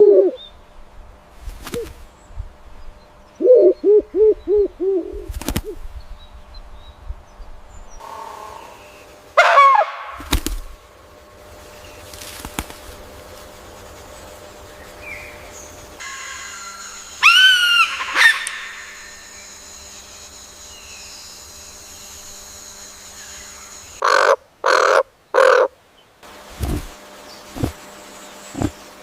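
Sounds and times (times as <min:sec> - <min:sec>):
low steady background noise: 0:00.0 - 0:29.0
bird calls: 0:14.0 - 0:25.7, 0:26.6 - 0:28.9.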